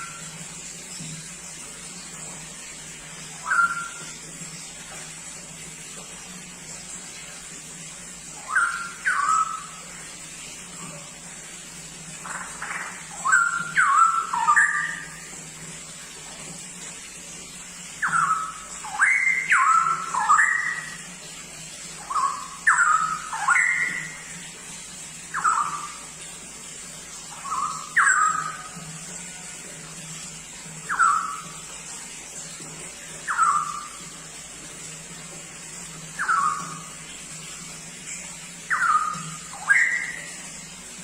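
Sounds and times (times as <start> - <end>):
faint steady hum: 0.0 - 41.0
bulbul singing whistled notes: 3.4 - 4.1, 8.4 - 9.7, 13.1 - 15.1, 18.0 - 21.0, 22.0 - 24.2, 27.3 - 28.8, 30.9 - 31.6, 33.2 - 34.0, 36.2 - 36.9, 38.7 - 40.4.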